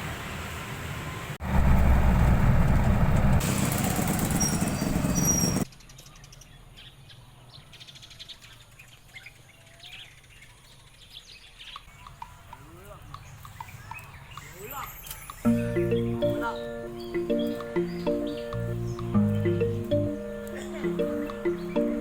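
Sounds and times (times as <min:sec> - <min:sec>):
loud rushing rumble: 0:01.4 - 0:05.1
birds chirping: 0:08.5 - 0:22.0.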